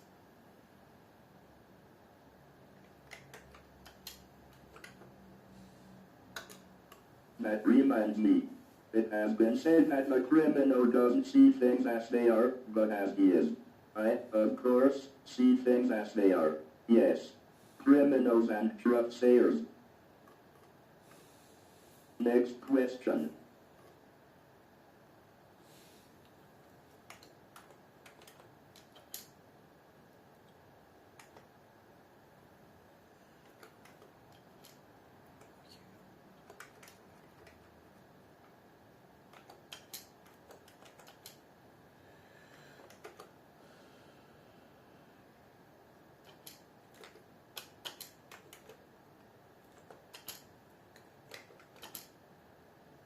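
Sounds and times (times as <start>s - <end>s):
computer keyboard typing: 2.8s - 5.2s, 6.3s - 7.0s, 26.9s - 29.3s, 30.4s - 31.5s, 33.4s - 37.9s, 39.2s - 41.4s, 42.8s - 43.4s, 46.2s - 48.8s, 49.6s - 52.2s.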